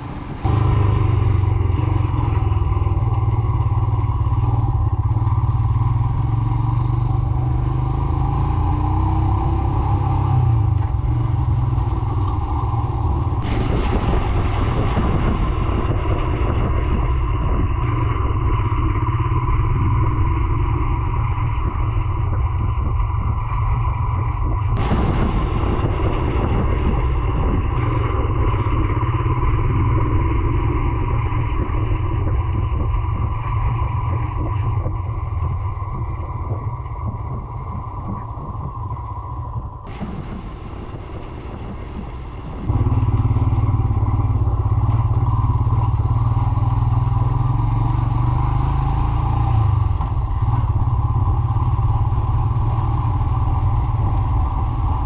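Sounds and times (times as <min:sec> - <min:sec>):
motorcycle engine running: 0:00.0 - 0:55.0
wind: 0:00.0 - 0:55.0.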